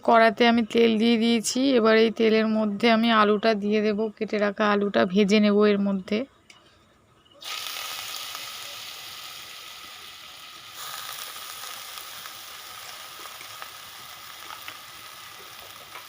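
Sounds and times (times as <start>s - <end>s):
faint oil crackles: 7.4s - 16.0s
potatoes sizzling in hot oil: 7.4s - 16.0s.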